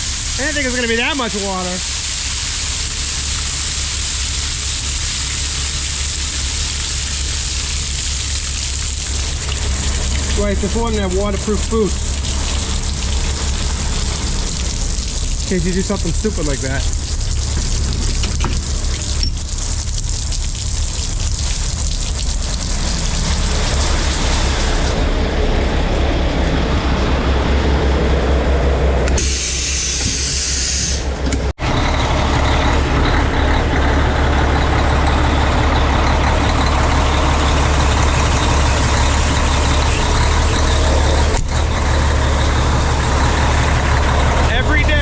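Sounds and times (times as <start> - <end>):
rushing water hiss: 0.0 - 25.0, 29.2 - 31.1
truck engine idling: 0.0 - 45.0.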